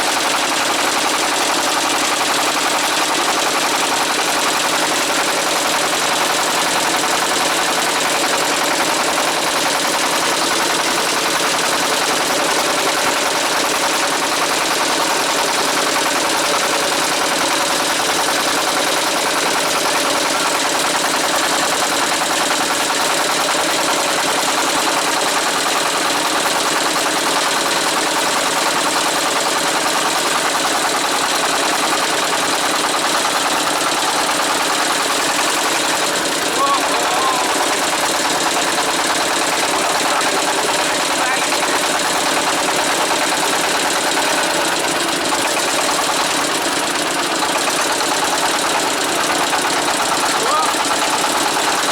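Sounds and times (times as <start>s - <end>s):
boat engine pulsing: 31.6s - 51.9s.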